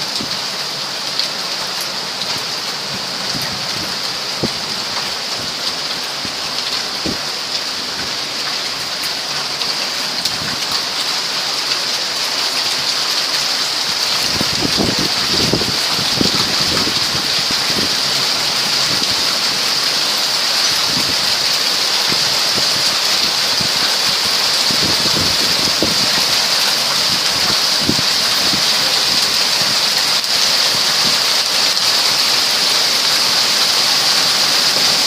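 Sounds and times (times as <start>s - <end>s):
rain falling: 0.0s - 35.0s.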